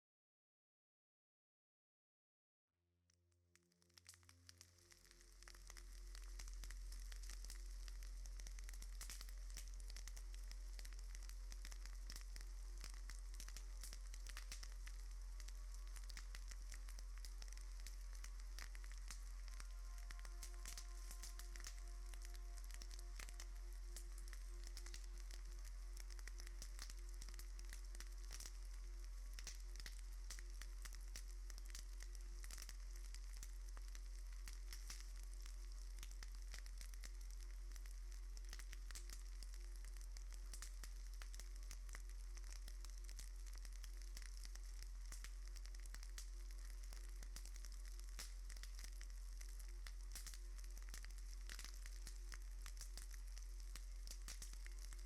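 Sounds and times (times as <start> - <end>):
crackling hiss: 3.6 - 55.0
low hum: 5.7 - 35.9.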